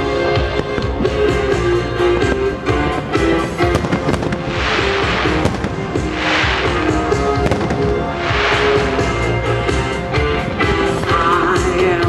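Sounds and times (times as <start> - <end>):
firework shells bursting with hiss: 3.6 - 10.0
loud pop music: 4.6 - 12.0.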